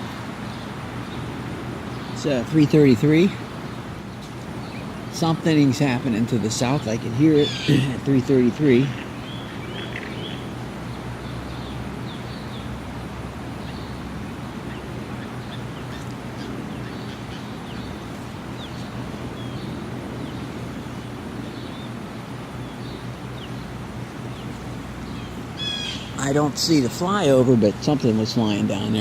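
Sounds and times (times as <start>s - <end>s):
distant aircraft rumble: 0.0s - 29.0s
small birds chirping: 0.0s - 29.0s.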